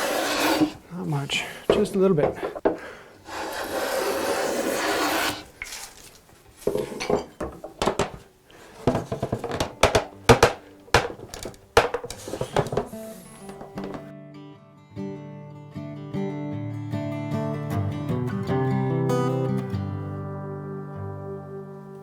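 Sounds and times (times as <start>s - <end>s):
hand tool scraping wood: 0.0s - 7.1s, 8.8s - 14.1s
wooden and metal clatter: 6.5s - 14.1s.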